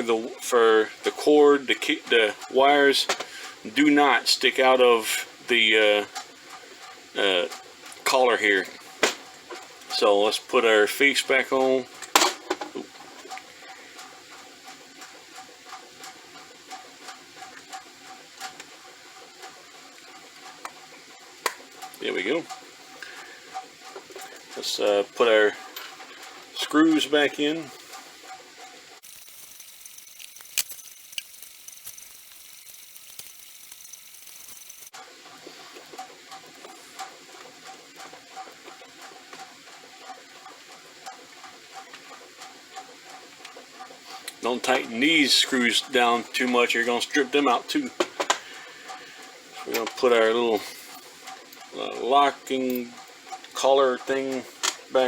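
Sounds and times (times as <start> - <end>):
plastic parts clicking and rattling: 29.0 - 34.9.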